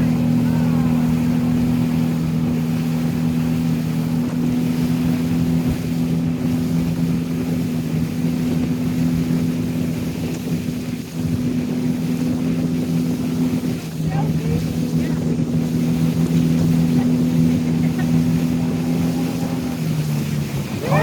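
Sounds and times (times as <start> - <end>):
boat engine droning: 0.0 - 21.0
wind and water rushing: 0.0 - 21.0.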